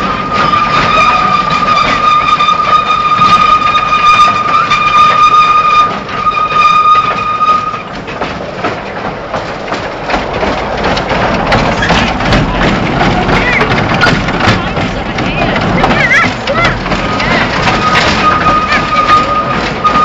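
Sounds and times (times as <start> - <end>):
train wheels squealing: 0.0 - 7.9, 17.1 - 20.0
rumble of train wagons: 0.0 - 20.0
train clatter: 0.0 - 20.0.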